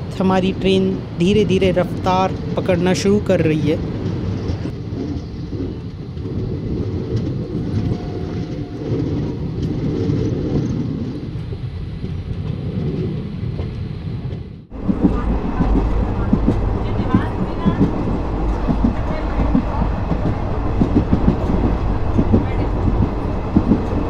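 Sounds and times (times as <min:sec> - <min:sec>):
train wheels rumbling: 0:00.0 - 0:24.0.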